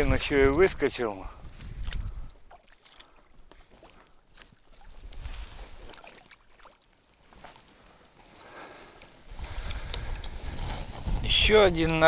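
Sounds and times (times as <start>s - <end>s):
wind rumble on microphone: 0.0s - 2.5s, 4.9s - 5.8s, 9.3s - 12.0s.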